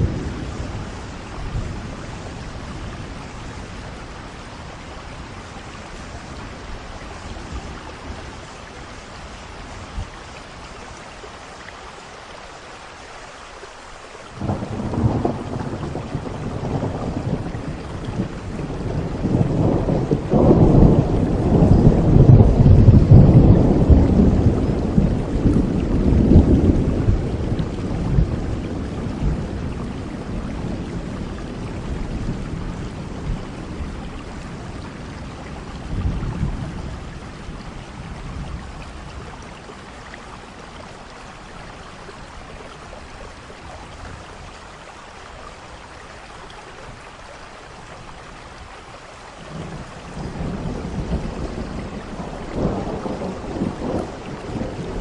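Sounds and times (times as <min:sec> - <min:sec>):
thunder rumbling: 0:00.0 - 0:10.1, 0:14.4 - 0:40.8, 0:49.4 - 0:55.0
steady rain: 0:00.0 - 0:55.0.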